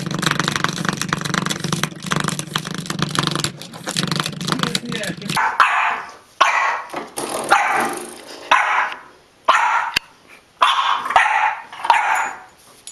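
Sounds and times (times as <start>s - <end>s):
puppy barking: 5.4s - 6.9s, 7.5s - 10.0s, 10.6s - 12.5s.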